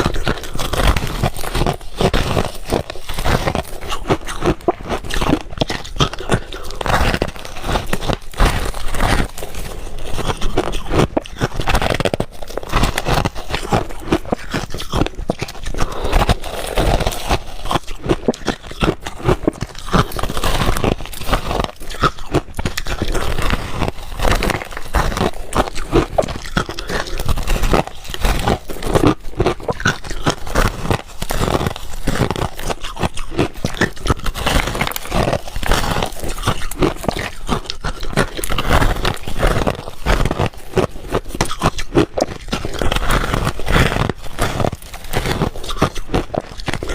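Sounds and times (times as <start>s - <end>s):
person crunching ice cubes: 0.0s - 46.9s.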